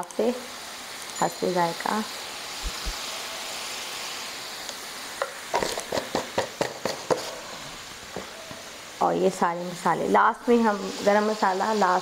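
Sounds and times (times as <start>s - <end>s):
meat sizzling on a griddle: 0.0s - 12.0s.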